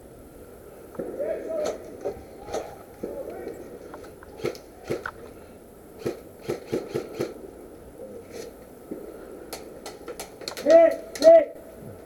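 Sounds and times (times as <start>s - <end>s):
airsoft gun shots: 6.0s - 7.4s.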